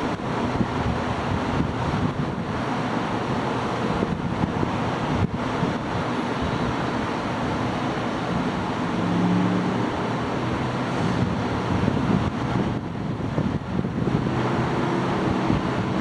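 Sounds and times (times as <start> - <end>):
wind on microphone: 0.0 - 2.6, 3.9 - 6.8, 9.6 - 16.0
rushing vehicle noise: 0.0 - 16.0.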